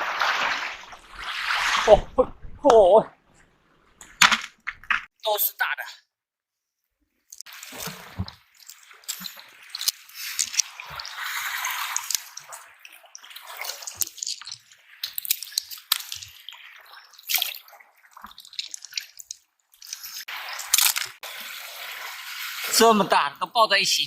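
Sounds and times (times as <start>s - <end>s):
seawater splashing over rocks: 0.0s - 2.7s, 7.4s - 23.0s
water dripping: 7.3s - 21.2s.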